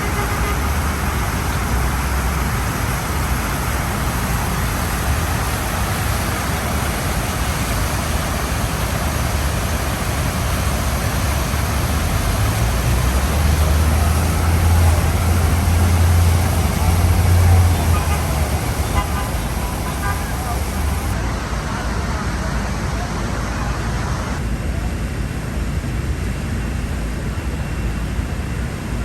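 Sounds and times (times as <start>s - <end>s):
heavy vehicle engine rumble: 0.0s - 29.0s
passing cars: 10.2s - 24.4s.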